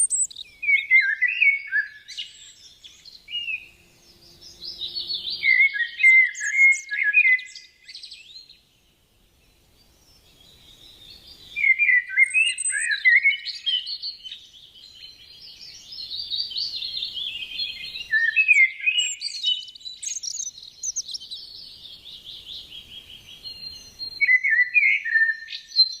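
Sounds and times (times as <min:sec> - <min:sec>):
pet bird chirping and chattering: 0:00.0 - 0:00.4, 0:20.0 - 0:21.3.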